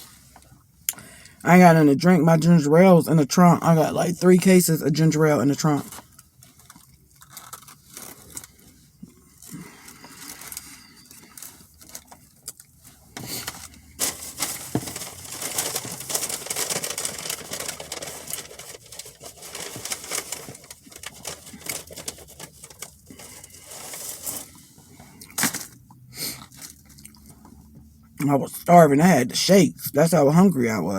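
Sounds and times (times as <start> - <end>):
food wrapping crinkling: 5.5 - 27.8.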